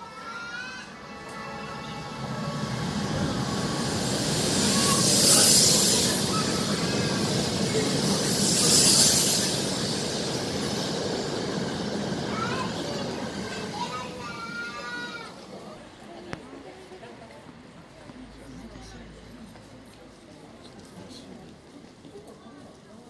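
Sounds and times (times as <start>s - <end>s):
high-speed train passing: 0.0s - 23.0s
hissing surges: 1.0s - 15.4s.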